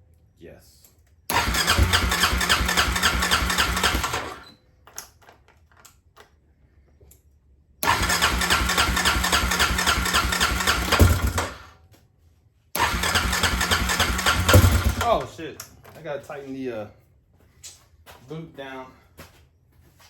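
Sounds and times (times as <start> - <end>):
electric starter cranking engine: 1.3 - 4.6, 7.8 - 11.7, 12.8 - 15.4.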